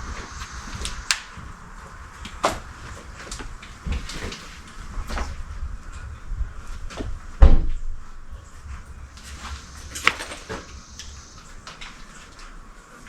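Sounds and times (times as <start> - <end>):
heavy thump: 6.9 - 12.0.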